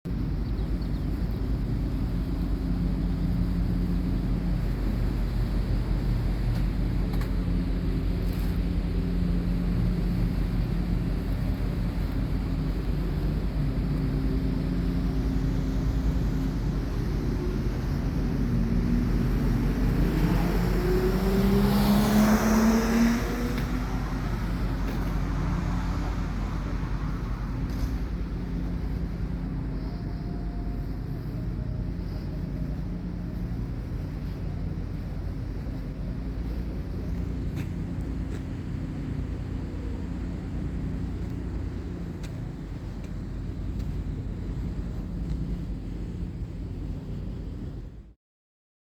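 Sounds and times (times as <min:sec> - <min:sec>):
car engine accelerating: 0:13.4 - 0:45.4.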